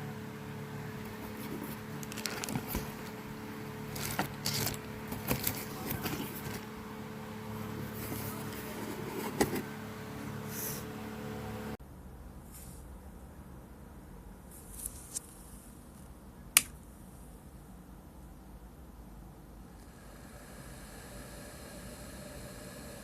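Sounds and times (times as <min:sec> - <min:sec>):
low hum: 0:00.0 - 0:12.2, 0:19.6 - 0:23.0.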